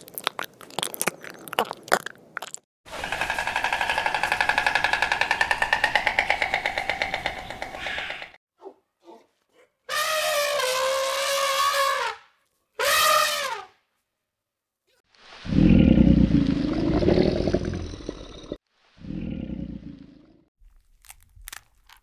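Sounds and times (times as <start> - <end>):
elephant trumpeting: 2.9 - 8.4
stork bill clattering: 2.9 - 8.4.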